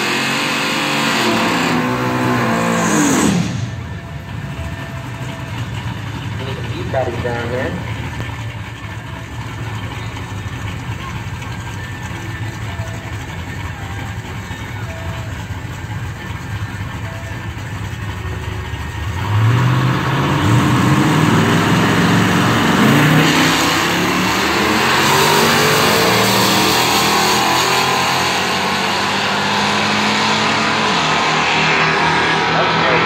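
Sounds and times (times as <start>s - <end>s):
drag car engine accelerating: 0.0s - 33.0s.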